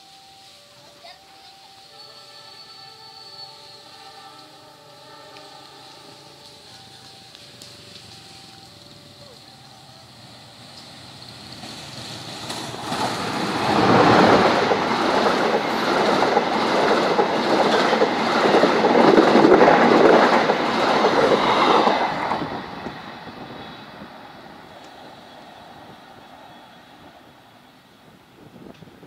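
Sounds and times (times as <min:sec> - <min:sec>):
passenger train passing: 0:00.0 - 0:29.0
wheel clatter over rail joints: 0:10.7 - 0:23.0.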